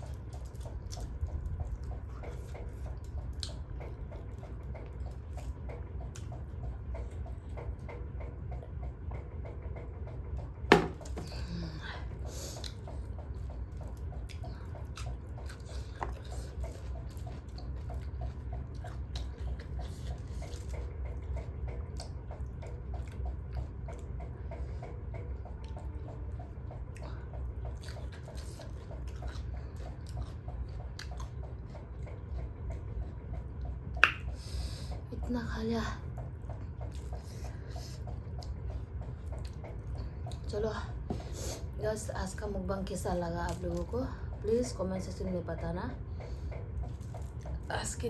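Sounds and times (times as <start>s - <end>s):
person chewing food: 0.0s - 35.1s, 36.1s - 41.8s, 46.1s - 47.7s
wet mouth clicks: 34.0s - 34.4s.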